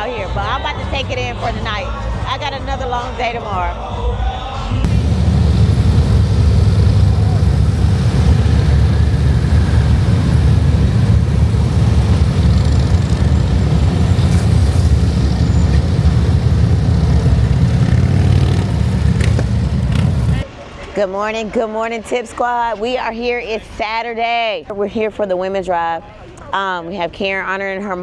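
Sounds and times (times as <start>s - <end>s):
motorcycle engine rumbling: 4.9s - 20.4s.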